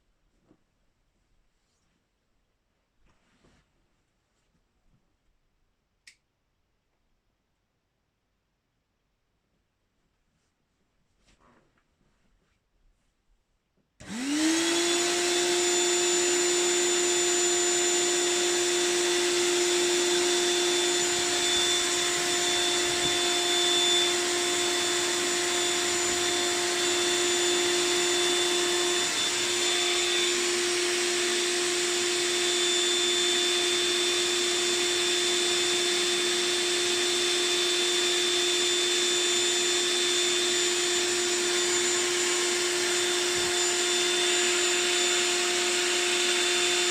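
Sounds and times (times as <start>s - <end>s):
electric air pump running: 14.0s - 46.9s.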